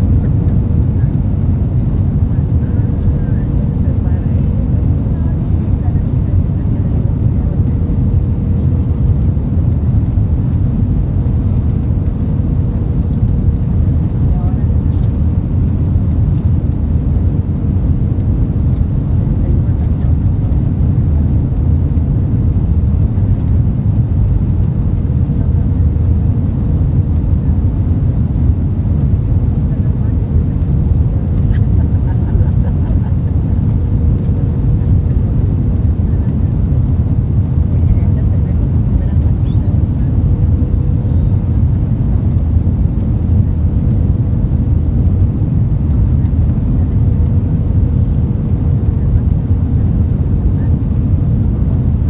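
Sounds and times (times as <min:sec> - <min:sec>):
airplane cabin rumble: 0:00.0 - 0:52.0
faint steady whine: 0:00.0 - 0:52.0.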